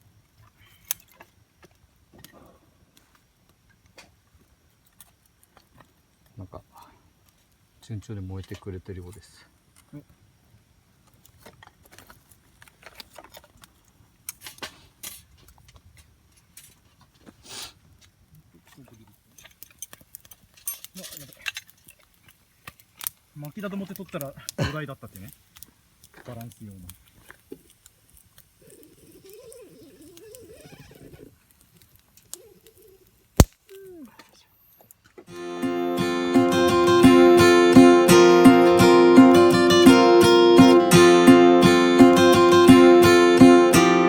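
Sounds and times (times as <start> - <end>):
campfire crackling: 0.0 - 44.0
fire popping: 2.9 - 44.0.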